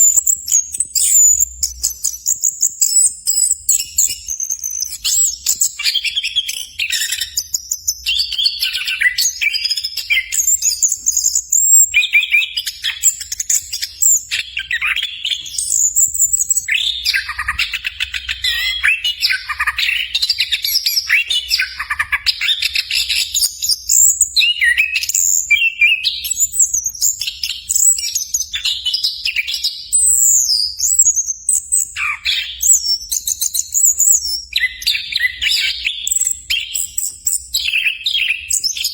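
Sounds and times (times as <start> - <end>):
thrush singing whistled phrases: 0.0 - 23.0.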